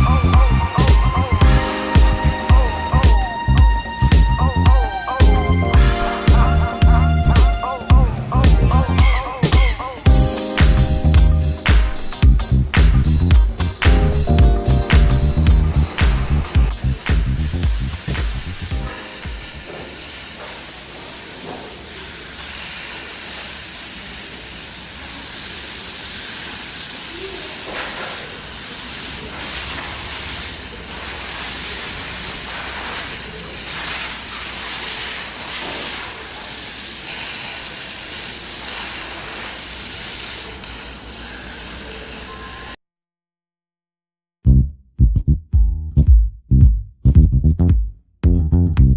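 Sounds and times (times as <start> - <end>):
metalworking hiss: 0.0 - 42.8
low hum: 10.1 - 19.0.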